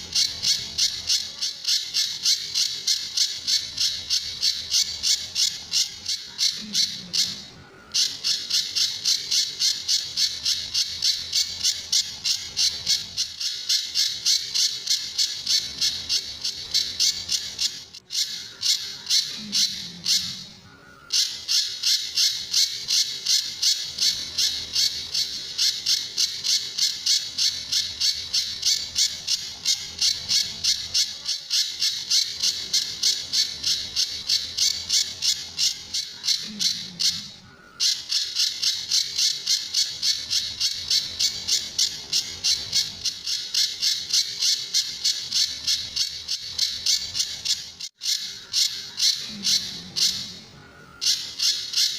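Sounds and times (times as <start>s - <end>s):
bird calling harsh notes: 0.0s - 51.9s.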